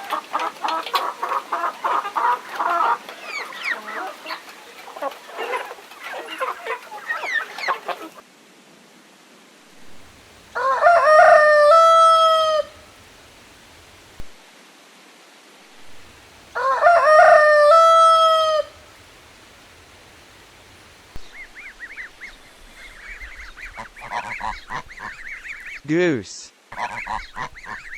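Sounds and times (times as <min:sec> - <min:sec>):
rooster crowing: 0:10.6 - 0:12.8, 0:16.6 - 0:18.9
geese honking: 0:21.2 - 0:25.9, 0:26.7 - 0:27.9.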